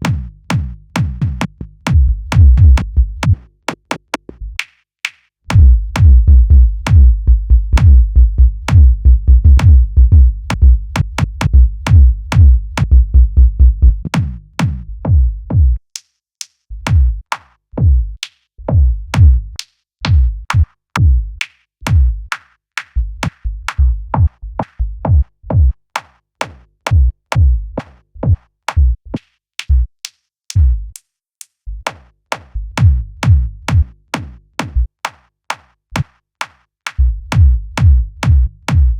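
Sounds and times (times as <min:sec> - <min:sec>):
bass-heavy kick drum pattern: 0:00.0 - 0:03.4, 0:05.5 - 0:15.8, 0:16.7 - 0:22.3, 0:23.0 - 0:25.8, 0:26.9 - 0:29.9, 0:30.6 - 0:31.0, 0:32.5 - 0:34.9, 0:37.0 - 0:38.9.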